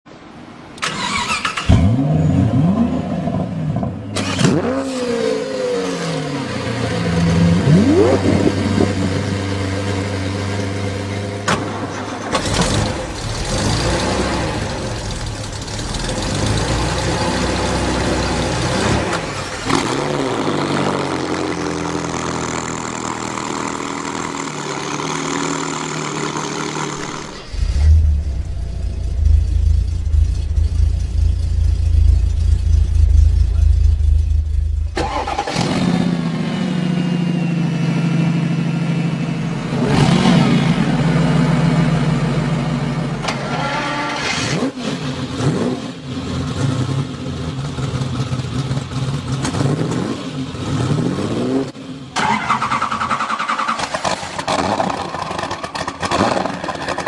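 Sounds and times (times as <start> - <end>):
car engines revving and idling: 1.7 - 57.0.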